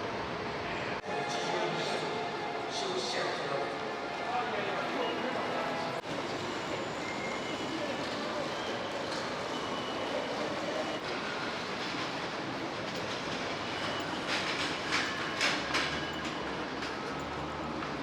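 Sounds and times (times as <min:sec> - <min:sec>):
train rumbling on rails: 0:05.1 - 0:18.0.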